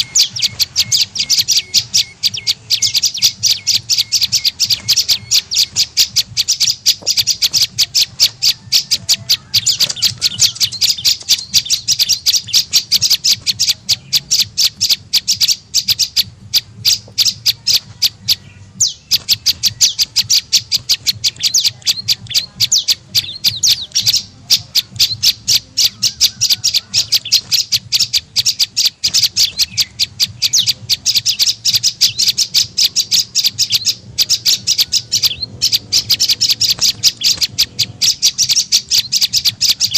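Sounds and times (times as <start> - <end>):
bird chipping call: 0.0 - 39.9.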